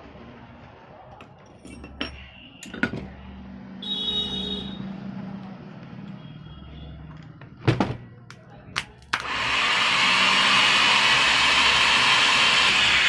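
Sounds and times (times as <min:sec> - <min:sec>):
starter motor whirring: 0:09.2 - 0:13.0.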